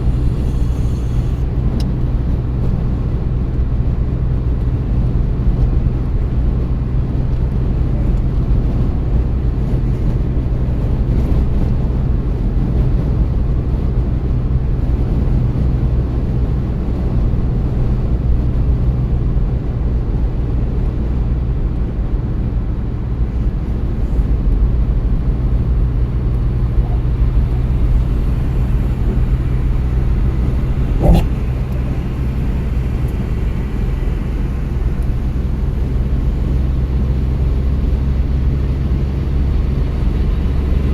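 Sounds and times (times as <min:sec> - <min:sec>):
car engine and tyre drone: 0:00.0 - 0:02.2, 0:23.2 - 0:40.9.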